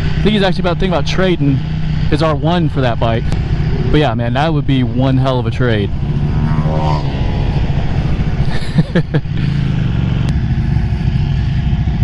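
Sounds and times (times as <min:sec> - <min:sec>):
motorcycle engine running: 0:00.0 - 0:12.0
wind rush: 0:03.0 - 0:12.0.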